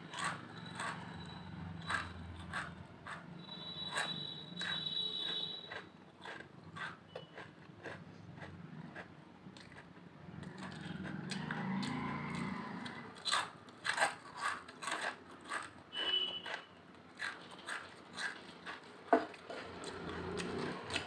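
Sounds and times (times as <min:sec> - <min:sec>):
potato chips crunching: 0:04.6 - 0:21.0.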